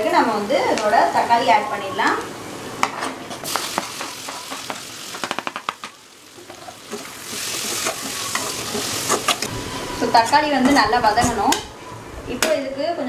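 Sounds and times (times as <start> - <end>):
food sizzling in oil: 3.3 - 10.4.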